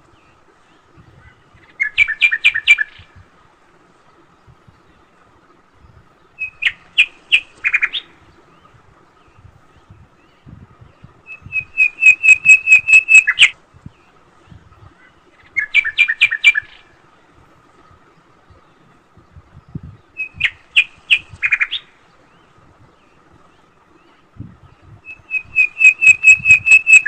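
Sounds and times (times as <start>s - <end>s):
bird chirping sharp notes: 11.5s - 13.5s.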